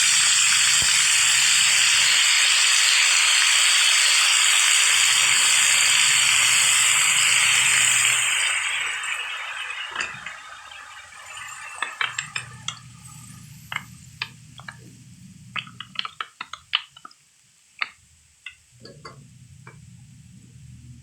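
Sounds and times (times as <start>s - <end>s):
cooking steam hiss: 0.0s - 17.1s
low steady hum: 9.9s - 16.8s, 18.0s - 21.0s.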